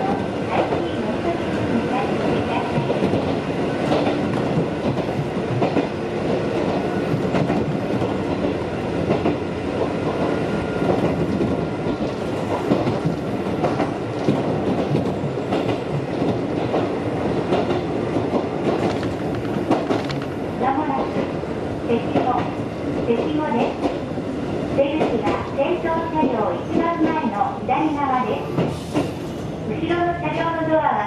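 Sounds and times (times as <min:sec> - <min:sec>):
train running rumble: 0:00.0 - 0:24.2
wheels clicking over rail joints: 0:11.0 - 0:20.4.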